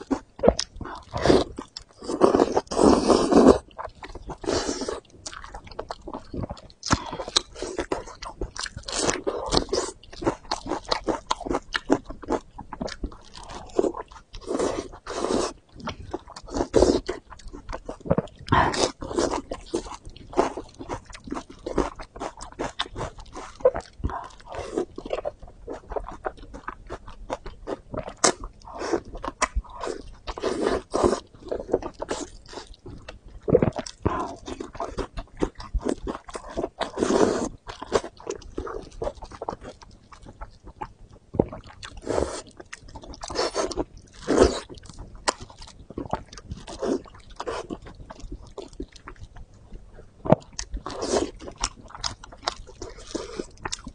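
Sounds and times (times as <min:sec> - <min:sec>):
chewing and biting: 0:00.0 - 0:53.9.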